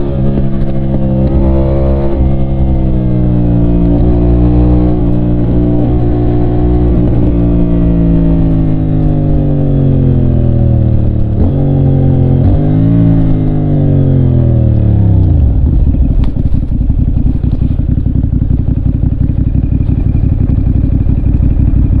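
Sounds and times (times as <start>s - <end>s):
motorcycle engine revving: 0.0s - 22.0s
motorcycle engine winding down: 0.0s - 22.0s
motorcycle engine idling: 14.6s - 22.0s.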